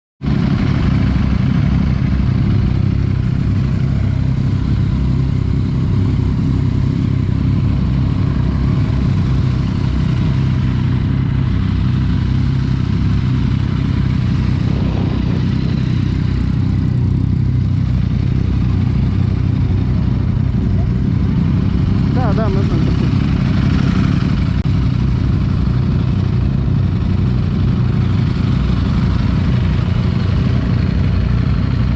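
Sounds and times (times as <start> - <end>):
motorcycle engine idling: 0.2 - 31.9.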